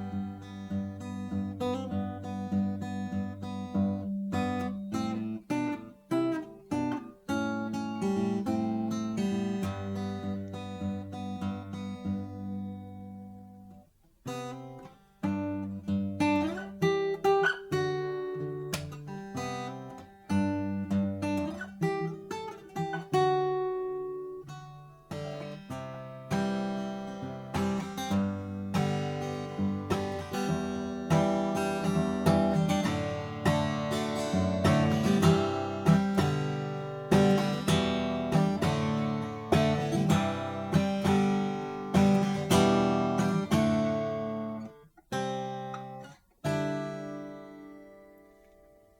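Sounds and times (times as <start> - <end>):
acoustic guitar strumming and picking: 0.0 - 48.9.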